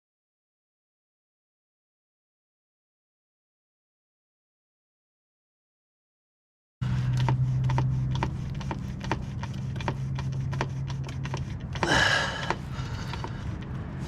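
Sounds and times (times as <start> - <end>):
pump clicking and humming: 6.8 - 13.9.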